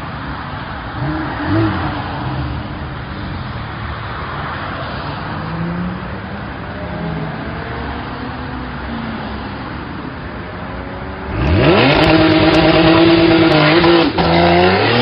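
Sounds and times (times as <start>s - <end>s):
car engine revving: 11.2s - 15.0s.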